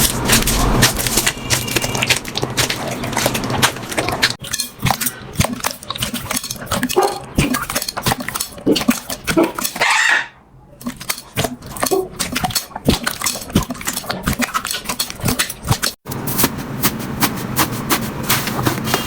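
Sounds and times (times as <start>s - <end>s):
dense crackling: 0.0s - 4.4s.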